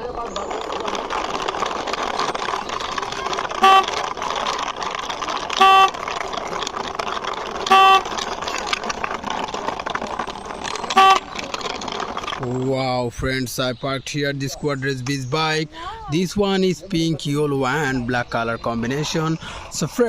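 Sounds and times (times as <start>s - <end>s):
toy vehicle scraping along: 0.0s - 12.7s
short horn toots: 3.6s - 4.0s, 5.6s - 6.0s, 7.7s - 8.1s, 11.0s - 11.2s.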